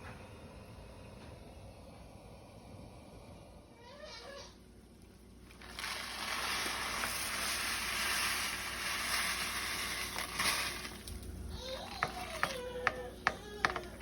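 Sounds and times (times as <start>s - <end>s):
water running from a tap: 5.4s - 13.0s.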